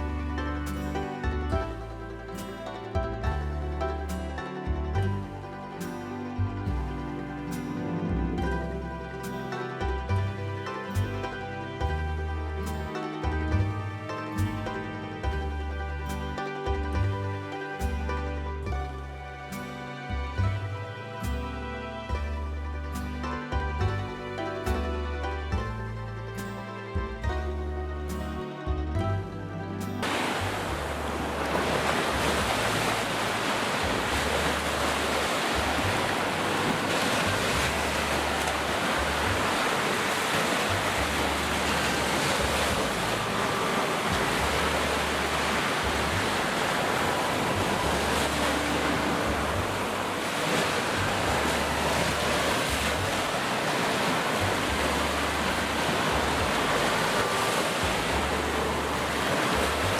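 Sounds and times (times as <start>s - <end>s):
sea surf washing onto beach: 0.0s - 25.6s, 29.7s - 59.9s
wind buffeting microphone: 28.6s - 59.9s.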